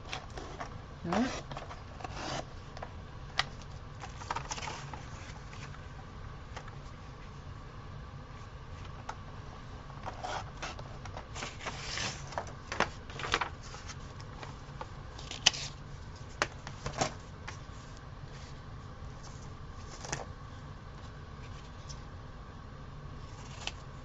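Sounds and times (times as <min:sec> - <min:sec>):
steady low hum: 0:00.0 - 0:24.0
paper rustling: 0:03.4 - 0:05.9, 0:10.0 - 0:20.3.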